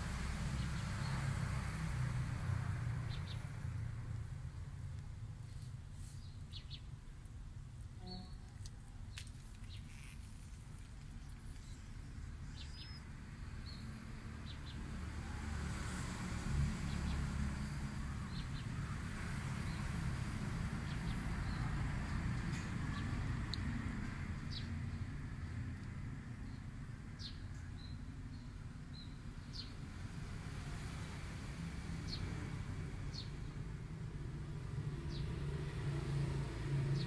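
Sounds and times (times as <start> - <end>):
bird chirps: 11.2 - 13.9.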